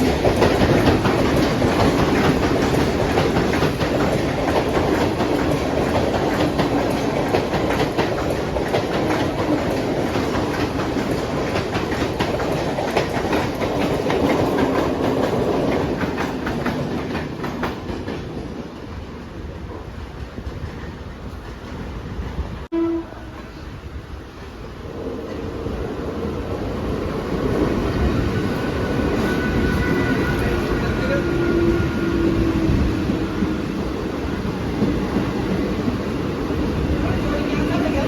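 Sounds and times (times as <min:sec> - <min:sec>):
train wheels clattering over rail joints: 0:00.0 - 0:22.7.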